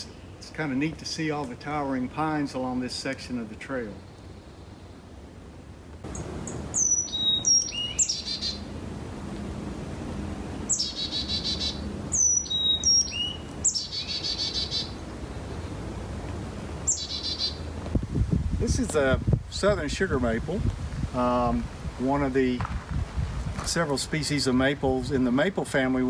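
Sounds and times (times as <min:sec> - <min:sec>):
songbird whistles and trill: 0:06.1 - 0:08.6, 0:10.7 - 0:15.0, 0:16.9 - 0:17.6.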